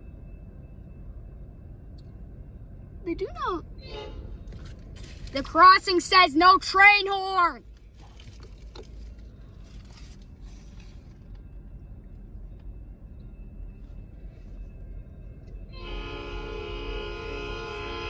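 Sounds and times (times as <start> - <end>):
locomotive air horn chord: 3.8 - 4.4, 15.7 - 18.0.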